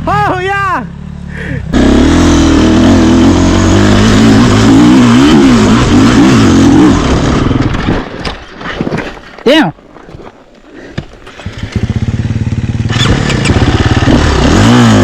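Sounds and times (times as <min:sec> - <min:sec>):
dirt bike engine revving: 0:00.9 - 0:08.0, 0:11.2 - 0:15.0.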